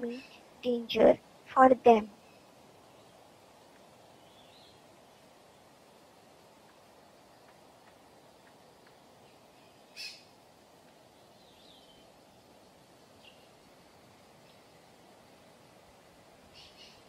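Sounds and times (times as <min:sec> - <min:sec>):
faint outdoor hiss: 0:00.0 - 0:17.0
short bird calls: 0:09.6 - 0:10.3, 0:16.5 - 0:17.0.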